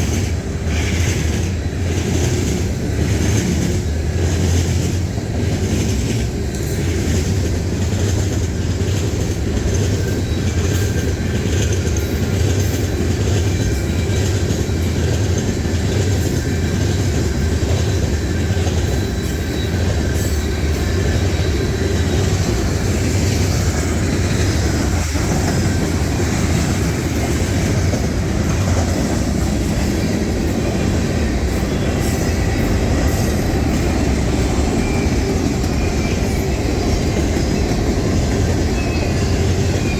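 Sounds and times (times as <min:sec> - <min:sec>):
train rumbling past: 0:00.0 - 0:39.9
wheels clicking over rail joints: 0:00.0 - 0:39.9
wheel squeal: 0:09.7 - 0:27.8, 0:31.5 - 0:39.9.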